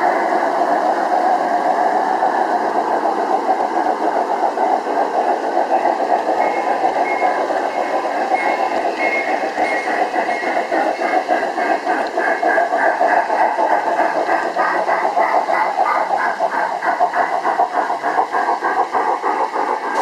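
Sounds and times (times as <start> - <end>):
model train running on track: 0.0 - 20.0.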